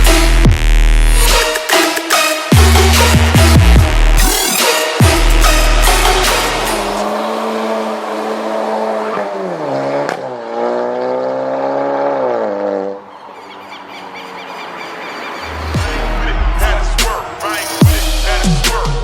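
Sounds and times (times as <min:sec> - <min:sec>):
car engine under load: 0:06.9 - 0:15.8.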